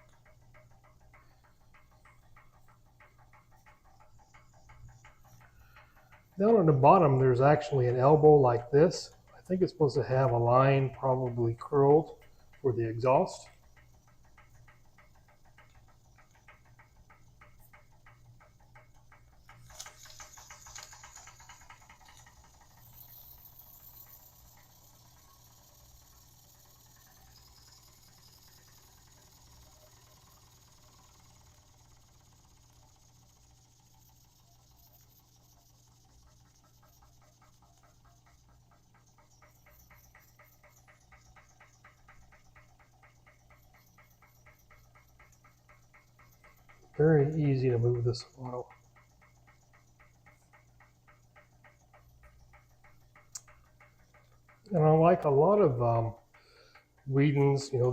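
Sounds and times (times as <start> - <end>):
toy steam engine ticking: 0.0 - 57.9.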